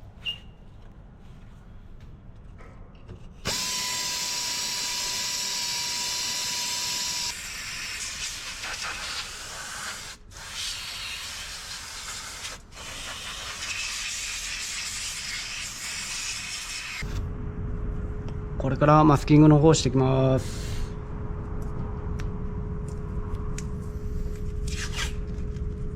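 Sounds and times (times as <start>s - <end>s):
steady whistle: 0.2s - 0.6s.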